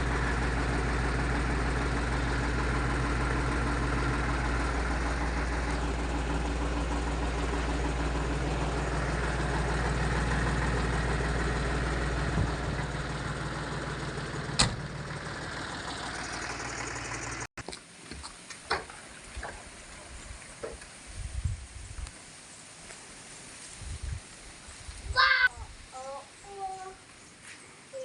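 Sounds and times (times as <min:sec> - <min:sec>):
tractor diesel engine idling: 0:00.0 - 0:17.5.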